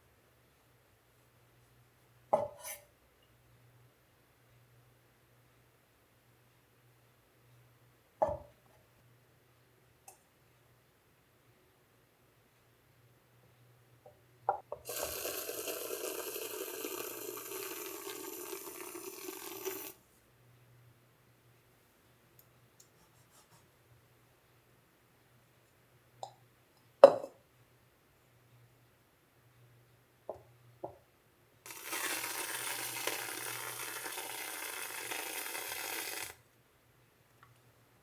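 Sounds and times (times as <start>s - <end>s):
water running from a tap: 14.9s - 20.0s, 31.7s - 36.3s.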